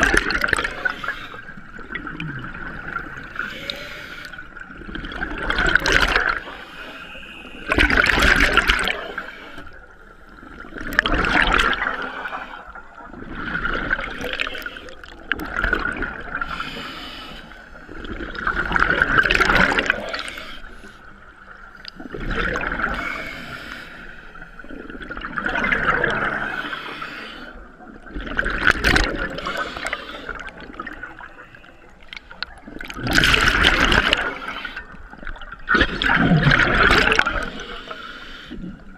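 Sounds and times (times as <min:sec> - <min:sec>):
exhaled bubbles rushing: 0:00.0 - 0:03.5, 0:04.6 - 0:06.6, 0:07.7 - 0:09.2, 0:10.5 - 0:16.6, 0:17.9 - 0:20.4, 0:21.9 - 0:23.2, 0:24.6 - 0:26.8, 0:27.9 - 0:37.6
diver breathing through regulator: 0:00.5 - 0:01.6, 0:03.3 - 0:04.5, 0:16.4 - 0:17.9, 0:22.8 - 0:24.7, 0:26.4 - 0:27.7, 0:29.2 - 0:31.3, 0:37.2 - 0:38.7.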